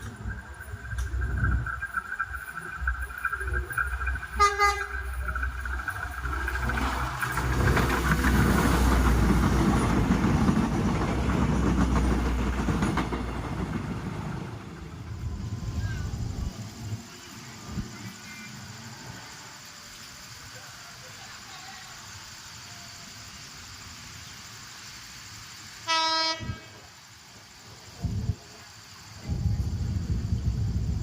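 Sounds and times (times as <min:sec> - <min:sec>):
train wheels clattering on rails: 0:00.0 - 0:15.2
train horn toot: 0:04.3 - 0:05.1, 0:25.8 - 0:26.8.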